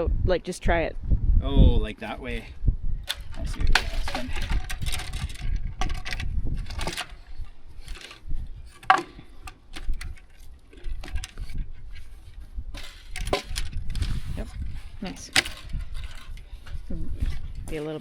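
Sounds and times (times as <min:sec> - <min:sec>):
metallic clicks and clinks: 0:03.0 - 0:08.2.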